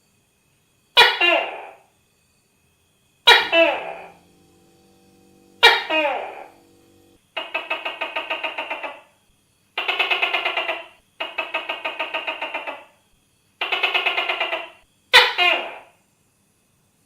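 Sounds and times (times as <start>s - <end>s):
gecko calling: 3.3s - 9.1s, 9.8s - 13.0s, 13.6s - 15.9s.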